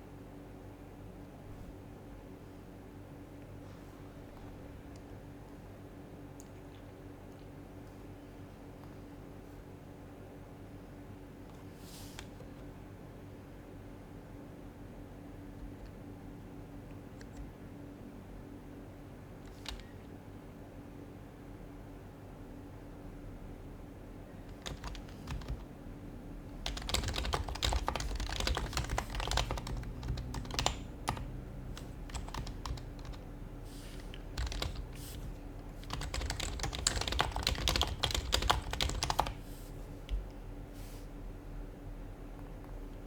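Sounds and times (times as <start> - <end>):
keyboard keys clicking softly: 19.4 - 20.1, 24.5 - 25.7, 26.6 - 33.3, 33.9 - 39.4.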